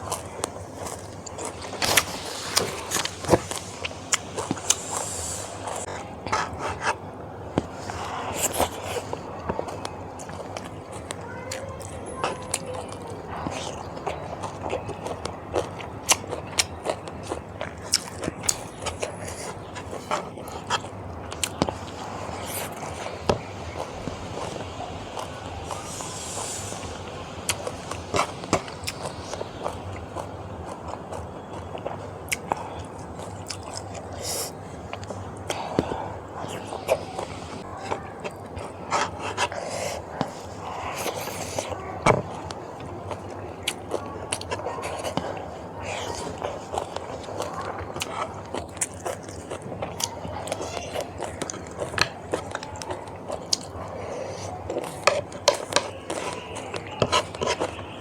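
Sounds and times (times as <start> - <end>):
chewing and biting food: 0.0 - 7.0, 7.6 - 58.0
hissing breaths: 1.4 - 6.6, 22.3 - 30.0.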